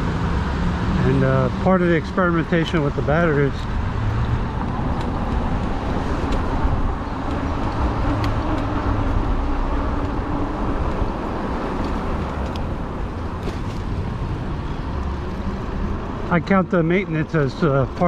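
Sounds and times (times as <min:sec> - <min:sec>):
tires rolling on pavement: 0:00.0 - 0:18.0.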